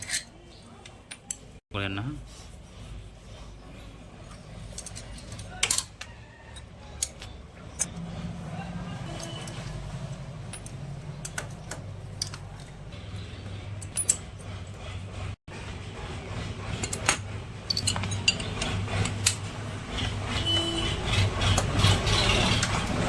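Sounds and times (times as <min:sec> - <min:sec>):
metallic clinks and taps of tools: 0:04.6 - 0:07.9, 0:09.1 - 0:12.7, 0:16.8 - 0:19.4.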